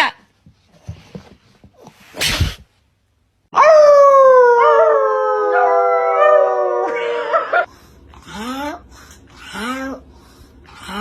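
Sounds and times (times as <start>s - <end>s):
dog howling: 3.5s - 7.7s.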